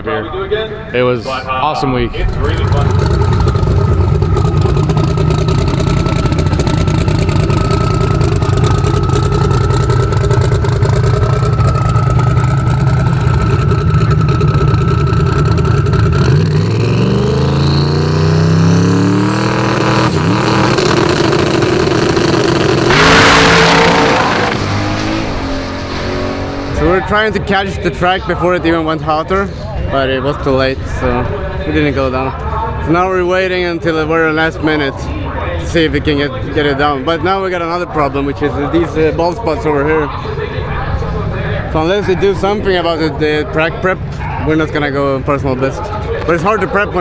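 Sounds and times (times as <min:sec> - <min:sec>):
car engine idling and accelerating: 0:02.0 - 0:29.2.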